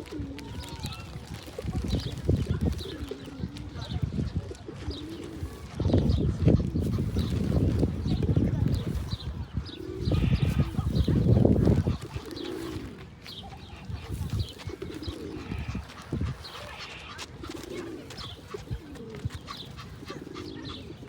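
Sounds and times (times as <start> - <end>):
pigeons cooing: 0.0 - 21.0
small birds chirping: 0.4 - 21.0.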